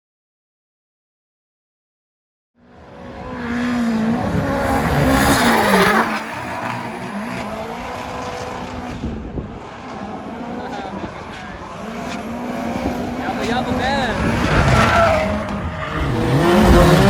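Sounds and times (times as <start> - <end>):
car engine revving: 2.6 - 17.0
tyre squeal: 13.3 - 16.9.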